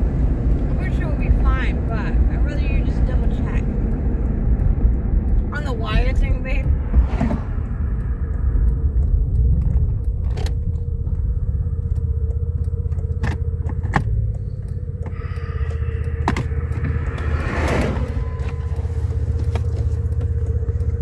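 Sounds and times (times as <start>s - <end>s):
constant hum: 0.0s - 21.0s
vehicle engine and road rumble: 0.0s - 21.0s
small clicks and rattles: 7.0s - 21.0s.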